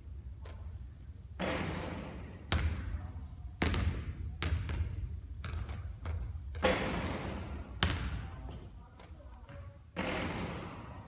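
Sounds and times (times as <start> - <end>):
basketball bouncing on court floor: 1.4 - 11.0.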